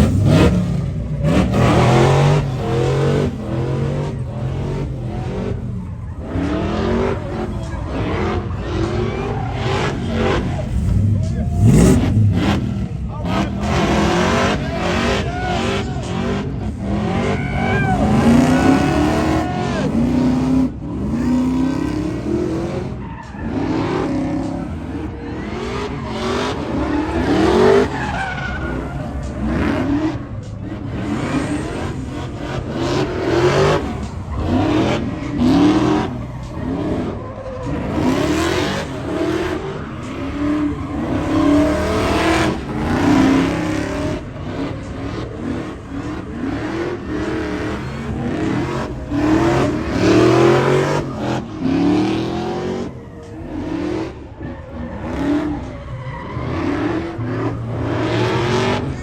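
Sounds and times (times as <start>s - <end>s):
car engines revving: 0.0s - 59.0s
tyre squeal: 13.4s - 20.4s, 22.4s - 59.0s.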